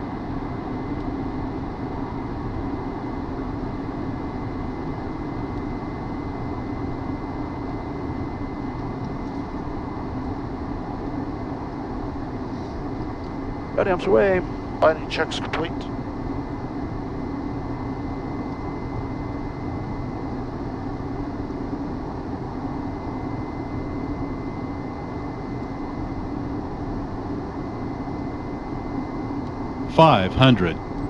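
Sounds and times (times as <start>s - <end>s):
jet engine drone and airflow: 0.0s - 29.2s
steady low hum: 29.9s - 30.8s.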